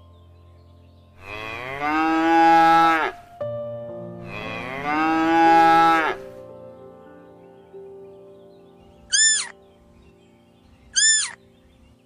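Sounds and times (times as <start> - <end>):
cow mooing: 1.2 - 3.2, 4.2 - 6.3.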